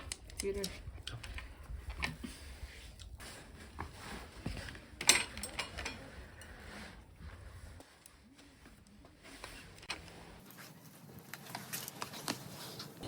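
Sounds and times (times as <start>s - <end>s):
utensils clicking and clattering: 5.0s - 6.6s.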